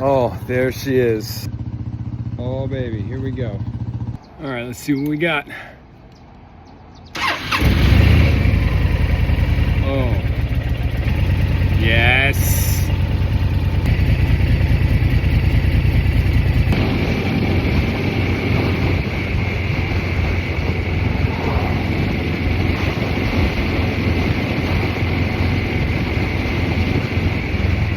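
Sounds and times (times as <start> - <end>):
motorcycle engine running: 0.0 - 4.3, 7.2 - 27.9
wind rushing over microphone: 16.7 - 27.9.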